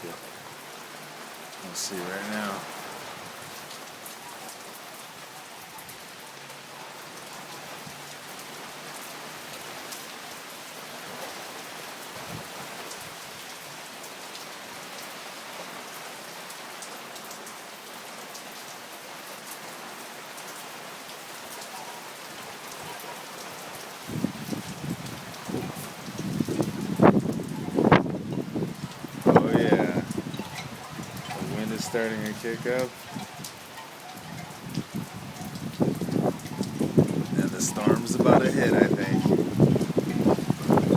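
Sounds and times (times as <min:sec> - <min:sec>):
steady rain pattering: 0:00.0 - 0:40.9
wind buffeting microphone: 0:12.2 - 0:13.2, 0:24.0 - 0:40.9.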